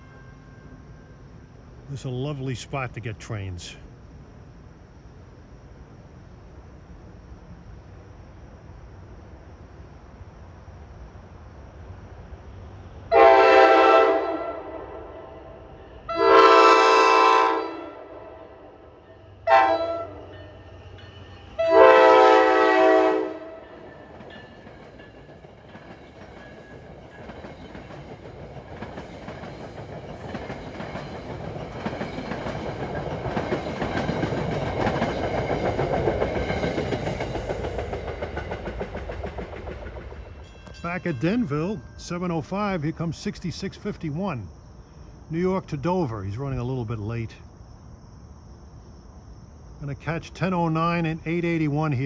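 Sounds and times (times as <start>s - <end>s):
train horn blasts: 0.0s - 0.8s, 13.1s - 18.8s, 19.4s - 20.3s, 21.6s - 23.9s
train wheels clattering on rails: 23.5s - 42.5s.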